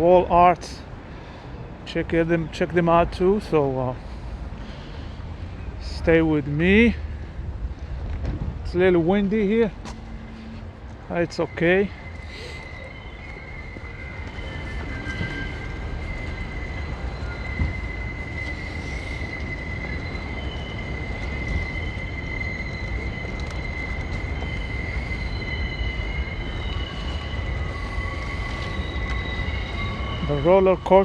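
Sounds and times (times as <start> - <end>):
wind buffeting microphone: 0.4 - 31.0
faint shifting high tones: 8.7 - 31.0
high-pitched squeal: 8.7 - 31.0.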